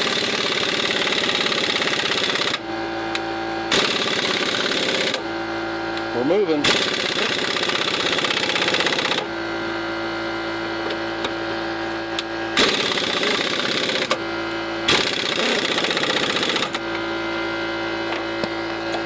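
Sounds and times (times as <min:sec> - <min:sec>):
pneumatic impact wrench hammering: 0:00.0 - 0:05.3, 0:06.0 - 0:09.3, 0:12.1 - 0:17.0
air compressor running: 0:00.0 - 0:19.0.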